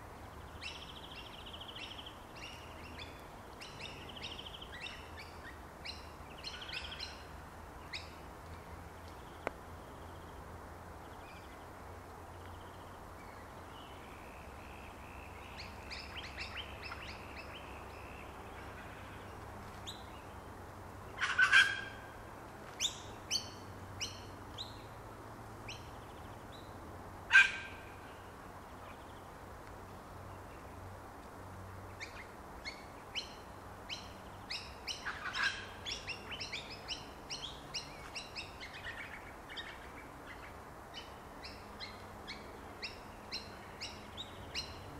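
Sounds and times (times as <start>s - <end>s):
loud sharp bird calls: 21.1s - 22.2s, 27.3s - 28.2s, 32.0s - 44.9s.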